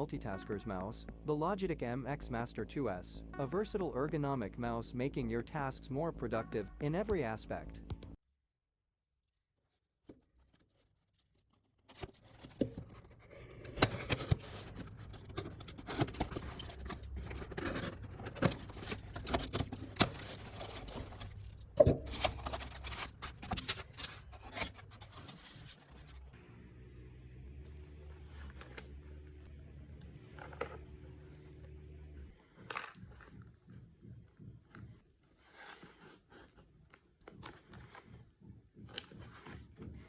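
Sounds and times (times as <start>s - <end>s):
cardboard box being opened: 11.9s - 26.2s
low hum: 13.0s - 32.4s.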